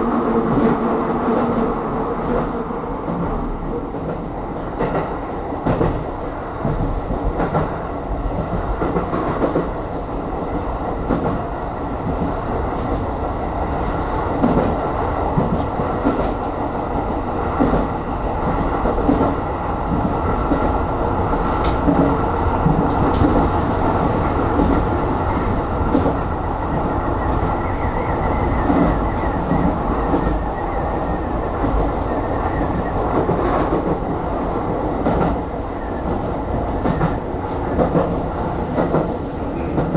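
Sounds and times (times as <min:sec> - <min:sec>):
train wheels rumbling on rail: 0:00.0 - 0:39.9
clacks over rail joints: 0:13.8 - 0:30.5, 0:31.6 - 0:39.9.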